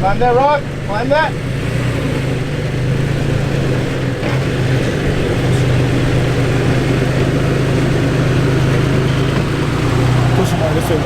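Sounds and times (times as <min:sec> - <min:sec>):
truck engine running at low revs: 0:00.0 - 0:11.0.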